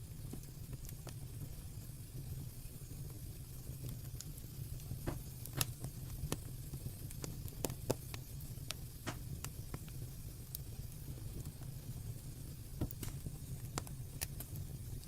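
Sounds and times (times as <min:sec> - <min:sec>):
fire crackling and popping: 0:00.0 - 0:15.0
fire rumbling: 0:00.0 - 0:15.0.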